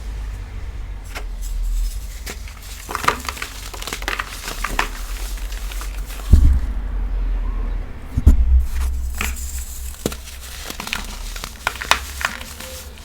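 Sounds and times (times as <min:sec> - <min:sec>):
chalk crushed by hand: 0:00.3 - 0:06.8, 0:08.2 - 0:13.0
dull thump: 0:05.9 - 0:11.3.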